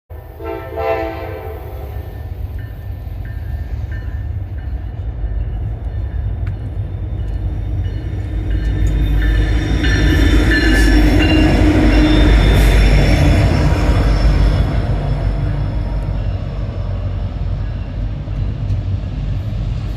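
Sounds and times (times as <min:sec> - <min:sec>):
diesel locomotive rumble: 0:00.1 - 0:19.9
train horn blast: 0:00.2 - 0:02.3
train wheels on rails: 0:00.4 - 0:19.9.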